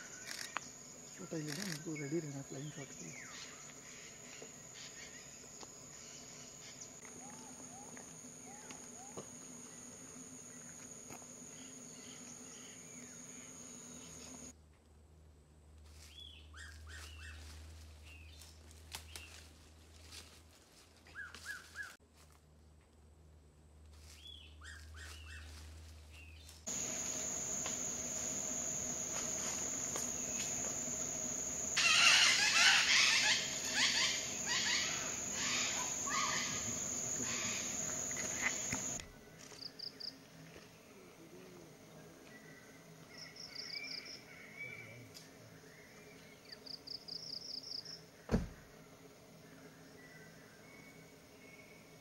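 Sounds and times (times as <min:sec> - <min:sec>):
high insect drone: 0:00.0 - 0:14.5, 0:26.7 - 0:39.0.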